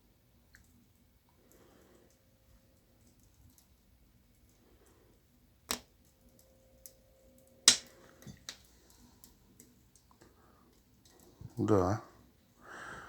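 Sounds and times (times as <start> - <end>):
faint steady hum: 0.0 - 13.0
wood stove ticking: 5.7 - 11.3.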